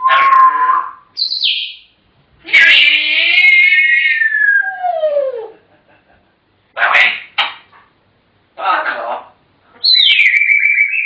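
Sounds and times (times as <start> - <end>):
parrot squawking: 0.0 - 1.8, 2.5 - 4.8, 6.8 - 7.6, 8.6 - 11.0.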